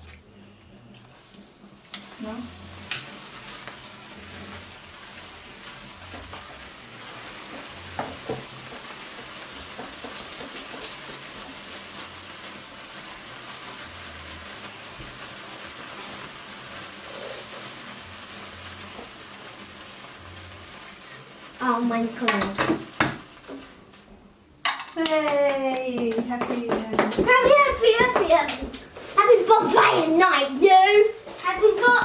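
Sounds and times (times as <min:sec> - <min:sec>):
sparklers crackling hiss: 0:00.2 - 0:32.0
sharp pops: 0:22.2 - 0:23.7.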